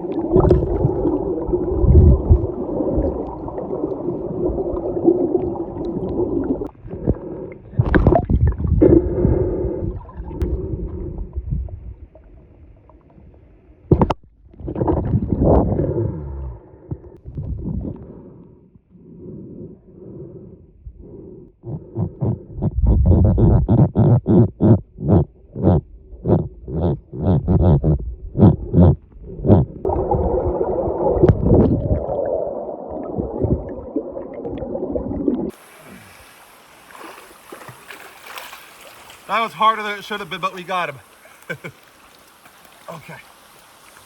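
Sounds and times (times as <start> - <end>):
muffled underwater gurgling: 0.0 - 11.7, 21.7 - 36.1.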